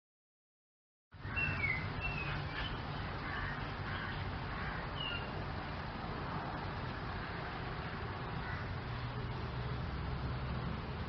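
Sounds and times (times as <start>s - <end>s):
bird chirps: 1.2s - 3.0s, 5.0s - 5.3s
low outdoor rumble: 1.2s - 11.0s.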